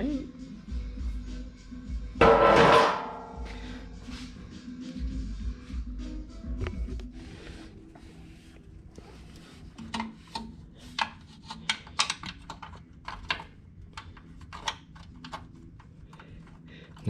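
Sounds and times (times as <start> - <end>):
tools clicking and tapping: 9.7 - 17.0.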